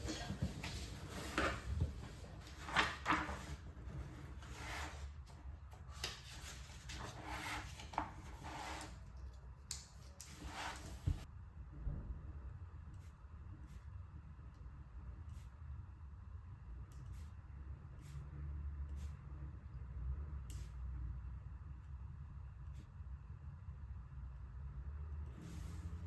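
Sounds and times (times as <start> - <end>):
handling rubs and scrapes: 0.0 - 9.4, 10.0 - 11.3.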